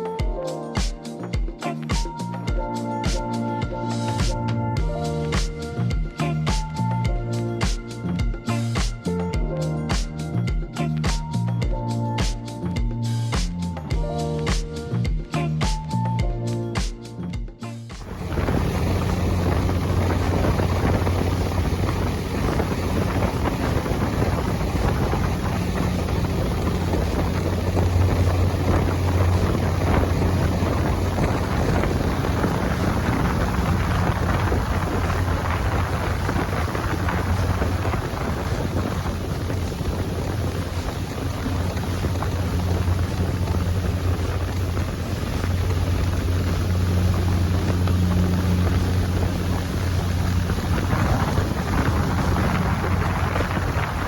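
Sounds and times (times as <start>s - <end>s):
boat engine droning: 18.0s - 54.0s
wind buffeting microphone: 18.0s - 54.0s.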